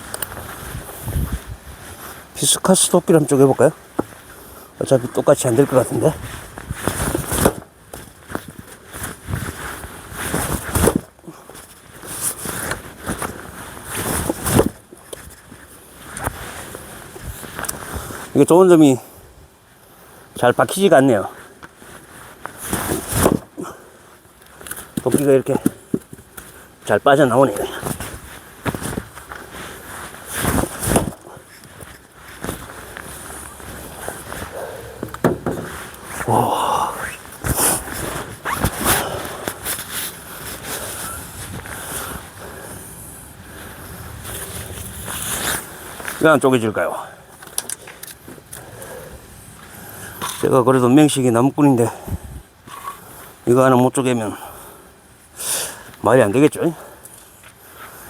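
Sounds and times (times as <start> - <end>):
axe striking log: 35.0 - 35.7.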